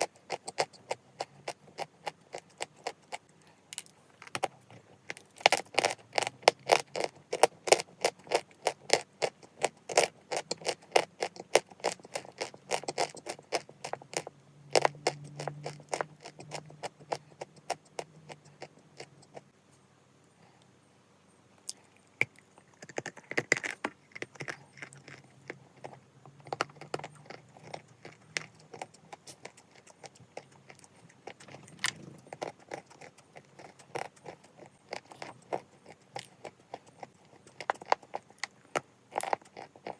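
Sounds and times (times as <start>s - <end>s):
chalk being chewed: 0.0s - 3.3s, 5.1s - 19.4s, 21.7s - 39.9s.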